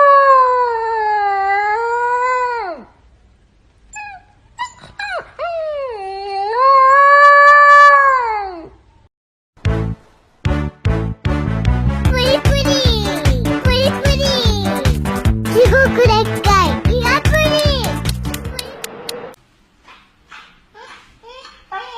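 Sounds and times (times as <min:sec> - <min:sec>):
dog whimpering: 0:03.9 - 0:07.4.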